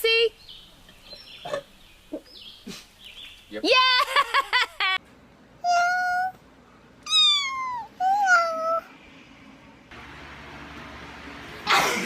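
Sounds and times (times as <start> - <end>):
cat meowing: 7.1 - 8.8.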